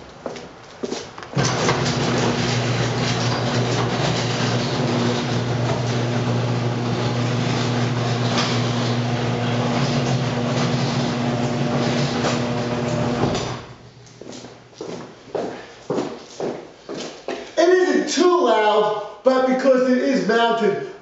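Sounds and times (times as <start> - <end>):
garage door moving: 1.2 - 13.9
garage door opener motor hum: 1.3 - 14.0.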